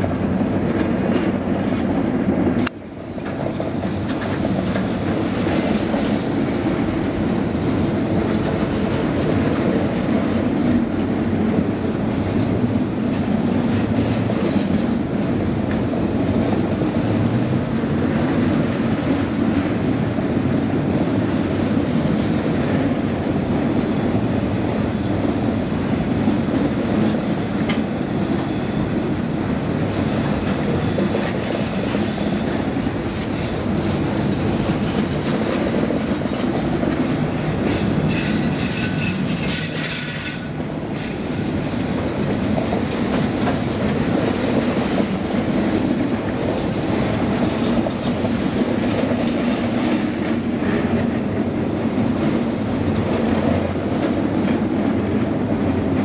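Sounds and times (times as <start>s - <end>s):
freight train wheels rumbling on rails: 0.0s - 56.0s
high wheel squeal: 23.2s - 29.0s, 29.9s - 33.6s, 37.0s - 41.8s.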